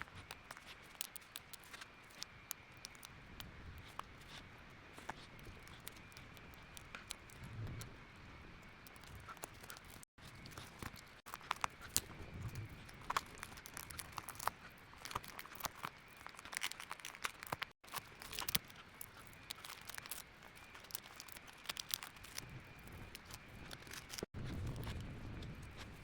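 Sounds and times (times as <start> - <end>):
cracked glass crackling and crunching: 0.0 - 3.1, 8.8 - 25.9.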